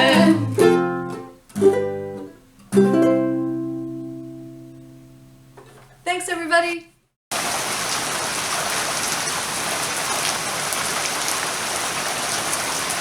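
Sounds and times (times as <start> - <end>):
steady rain hiss: 7.3 - 13.0.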